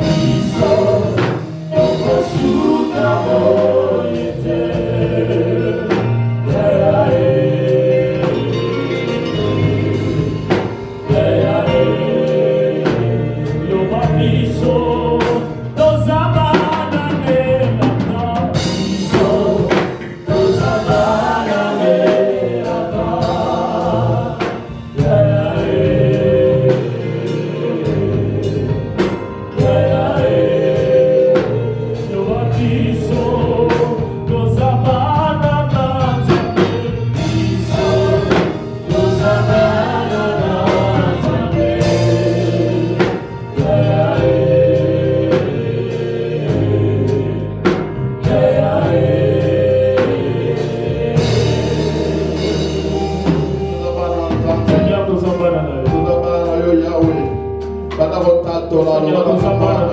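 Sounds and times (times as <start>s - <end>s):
choir singing: 0.0s - 57.3s
bass guitar: 0.0s - 59.9s
drum kit steady beat: 0.0s - 59.9s.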